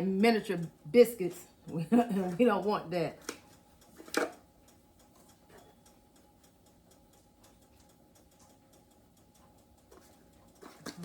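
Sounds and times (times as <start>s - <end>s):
faint steady hum: 0.0s - 11.0s
faint repeating ticks: 4.6s - 10.7s.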